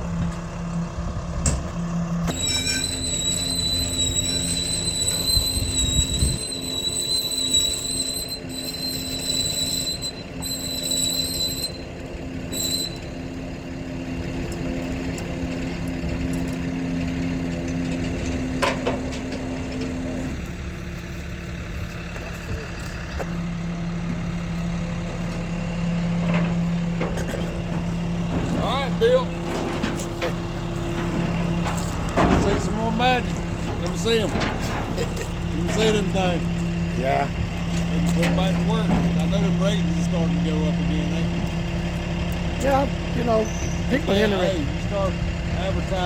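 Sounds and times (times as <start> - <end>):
truck engine running: 0.0 - 46.0
high whistling whine: 2.2 - 13.2.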